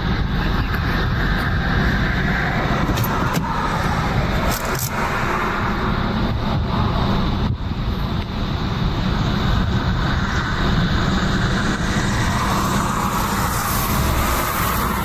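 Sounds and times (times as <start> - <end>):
road vehicle rumble and hiss: 0.0 - 15.0.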